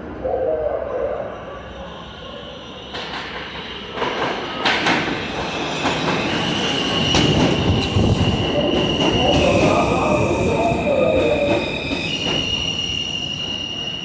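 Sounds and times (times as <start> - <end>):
subway train arriving: 0.0 - 14.0
high-pitched squeal: 5.2 - 14.0.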